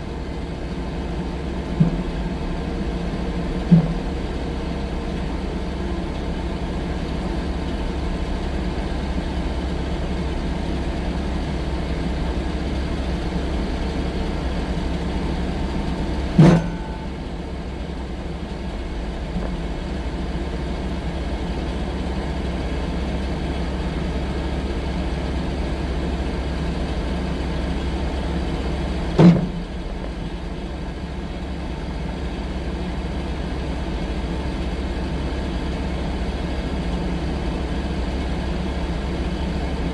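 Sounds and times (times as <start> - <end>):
sharp loud knocks: 1.8 - 2.2, 3.6 - 4.2, 16.4 - 17.3, 29.2 - 29.8.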